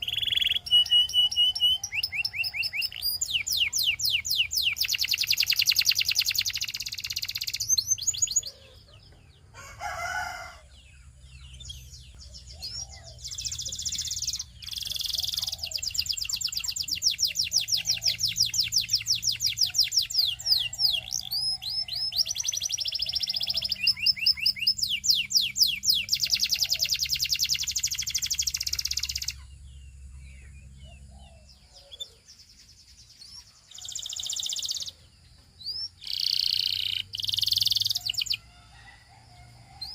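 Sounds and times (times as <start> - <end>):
canary singing fast trills: 0.0 - 39.9.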